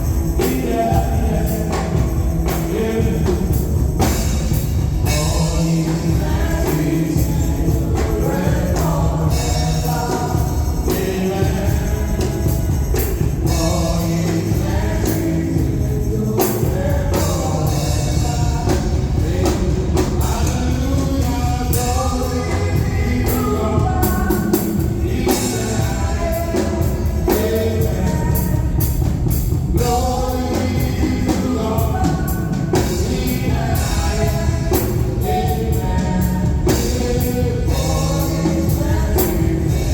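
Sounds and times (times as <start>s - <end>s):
band with bass and drums: 0.0s - 39.9s
gospel singing voices: 0.0s - 39.9s.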